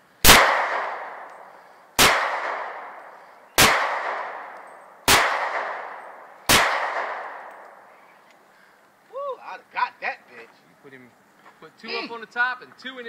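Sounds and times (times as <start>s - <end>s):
gunshots with echo: 0.2s - 7.9s.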